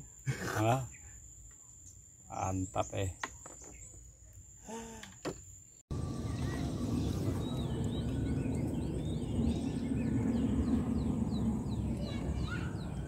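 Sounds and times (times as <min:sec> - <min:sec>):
birds chirping: 0:00.6 - 0:04.3, 0:05.9 - 0:13.0
low background rumble: 0:05.9 - 0:13.0.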